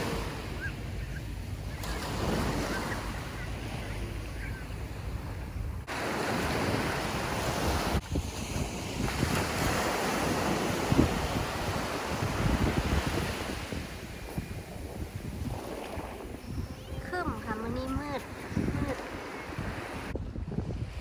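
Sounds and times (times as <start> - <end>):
sea waves washing onto beach: 0.0 - 0.9, 5.8 - 20.2
wind buffeting microphone: 0.0 - 21.0.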